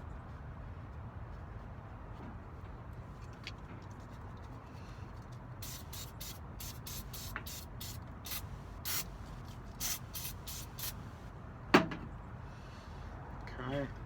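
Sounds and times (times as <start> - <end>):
aerosol spray can hissing: 5.6 - 9.1, 9.8 - 11.0.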